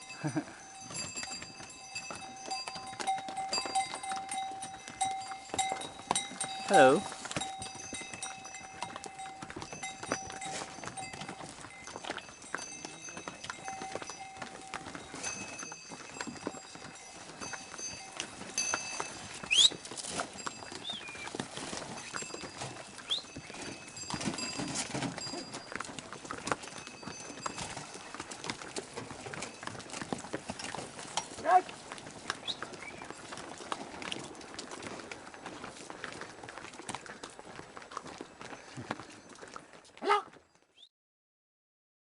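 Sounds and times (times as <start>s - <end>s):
small bells ringing: 0.0s - 31.6s, 38.1s - 39.8s
hooves clopping on stony path: 0.0s - 40.9s.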